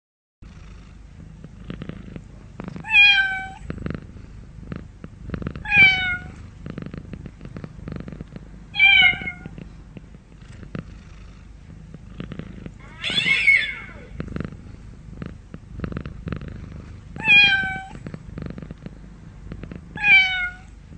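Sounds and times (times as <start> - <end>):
cat purring: 0.4 - 20.9
cat high-pitched calls: 5.6 - 6.3, 8.8 - 9.5, 12.8 - 14.1, 20.0 - 20.7
cat harsh rough call: 12.8 - 14.7, 17.2 - 18.0.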